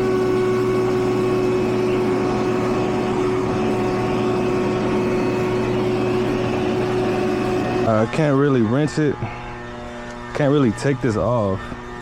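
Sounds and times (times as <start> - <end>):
compressor hum: 0.0 - 12.0
condenser fan noise: 0.0 - 12.0.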